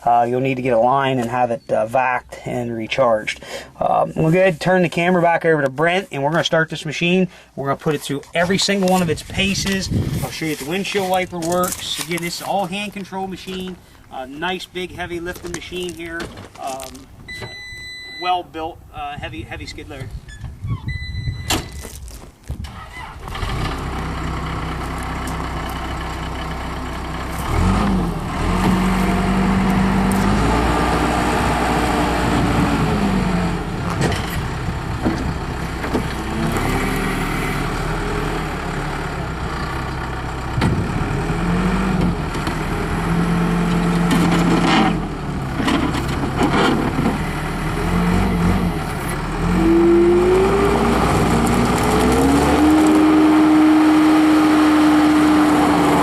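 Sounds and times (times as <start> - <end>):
diesel loader engine revving: 22.7 - 56.0.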